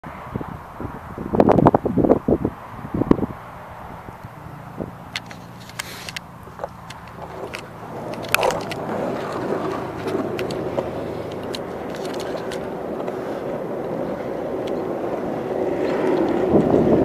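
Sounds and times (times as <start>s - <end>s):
vehicle rumble: 0.0s - 17.0s
sharp clicks: 5.1s - 9.4s, 10.0s - 12.7s.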